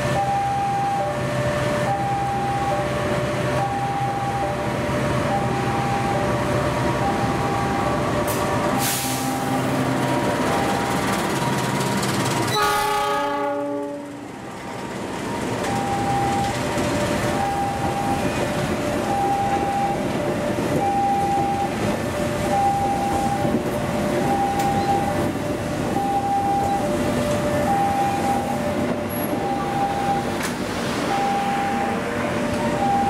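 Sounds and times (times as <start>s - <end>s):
two-tone electronic warning alarm: 0.0s - 9.6s, 10.4s - 14.0s, 14.9s - 30.4s, 31.1s - 33.0s
diesel locomotive engine running: 0.0s - 33.0s
train horn: 12.5s - 14.2s.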